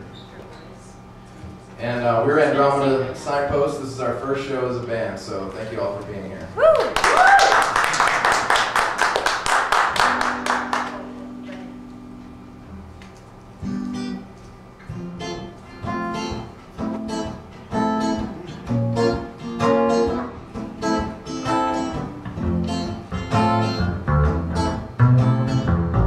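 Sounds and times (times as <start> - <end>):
acoustic guitar strumming chords: 9.9 - 26.0.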